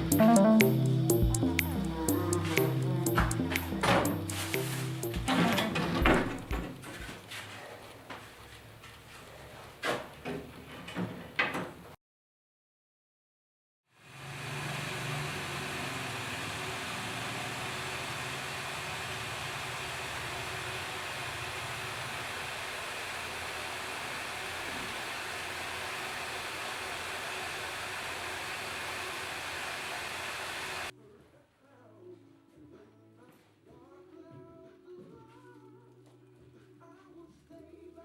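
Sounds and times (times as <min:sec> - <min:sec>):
power tool hissing: 0:00.0 - 0:06.7, 0:14.0 - 0:30.9.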